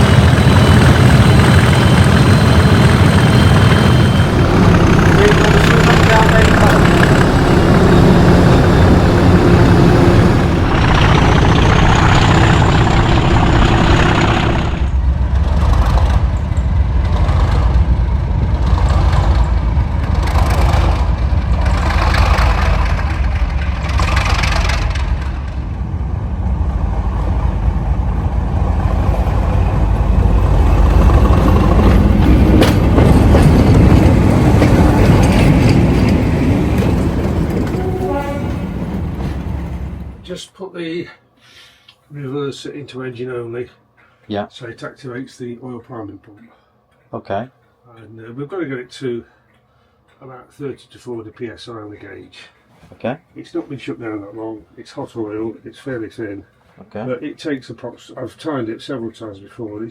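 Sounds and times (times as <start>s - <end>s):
diesel locomotive engine running: 0.0s - 40.4s.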